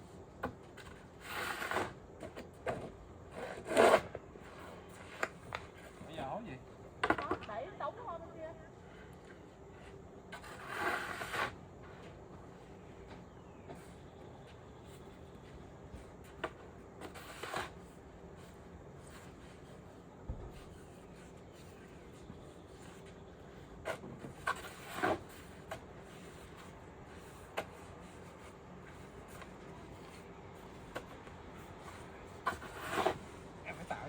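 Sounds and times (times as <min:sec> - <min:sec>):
snow shovel scraping snow: 0:01.2 - 0:02.0, 0:10.3 - 0:11.6, 0:17.0 - 0:17.8, 0:24.3 - 0:28.3, 0:32.4 - 0:34.0.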